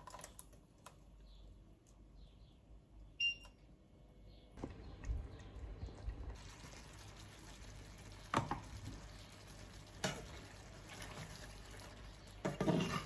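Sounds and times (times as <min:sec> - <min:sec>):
food sizzling in a pan: 0:06.4 - 0:13.0.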